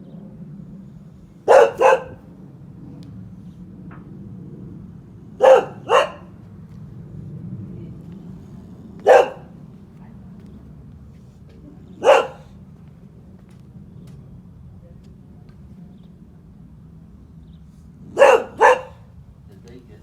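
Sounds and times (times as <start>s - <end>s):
dog barking: 1.4s - 2.3s, 5.4s - 6.4s, 9.0s - 9.6s, 12.0s - 12.6s, 18.1s - 19.1s.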